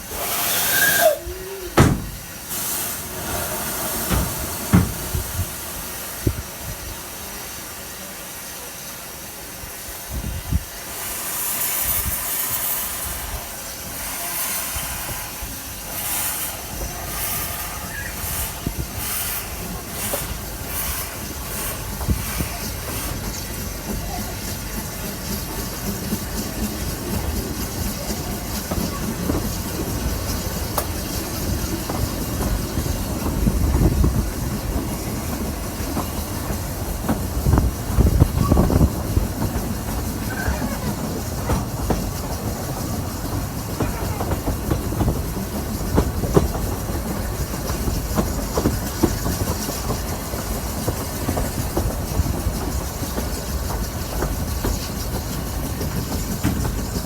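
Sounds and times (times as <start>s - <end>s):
train rumbling: 0.0s - 57.0s
wheel clicks over rail joints: 16.0s - 57.0s
wind buffeting microphone: 28.0s - 57.0s.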